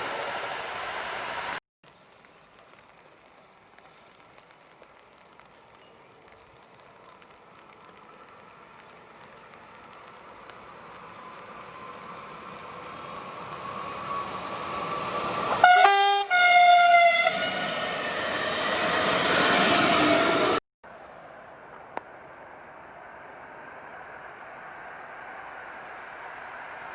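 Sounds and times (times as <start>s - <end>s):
electric train running noise: 7.2s - 16.1s
train horn blasts: 15.5s - 17.7s.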